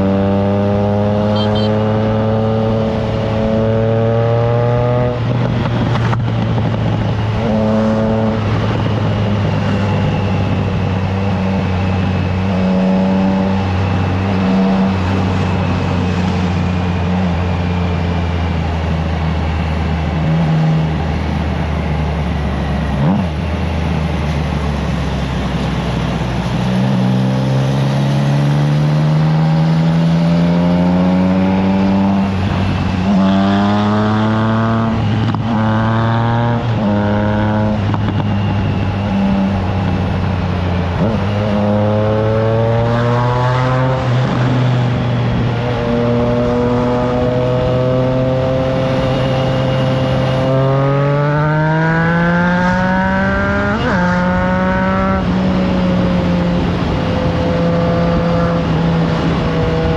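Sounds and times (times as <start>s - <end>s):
motorcycle engine revving: 0.0s - 59.9s
wind on microphone: 4.8s - 21.8s, 51.7s - 59.9s.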